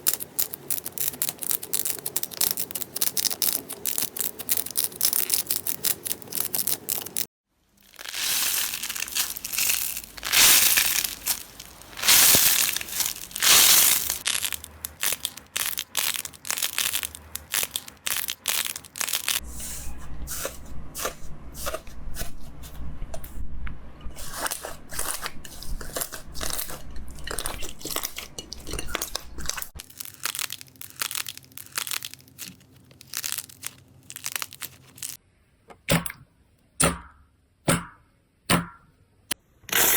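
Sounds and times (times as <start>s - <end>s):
slime crunching and crackling: 0.0s - 19.4s, 24.4s - 35.2s.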